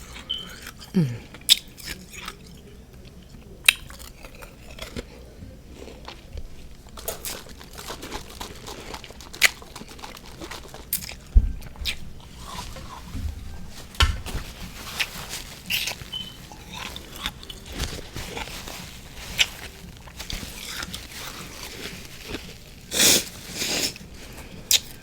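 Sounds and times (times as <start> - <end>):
soft chewing: 0.0 - 25.0
sharp crunches of biting frost: 20.3 - 24.0.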